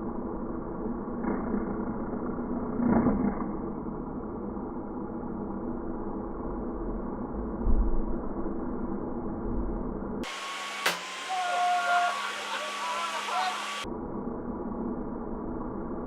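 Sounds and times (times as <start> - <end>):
lawnmower running: 10.2 - 13.8.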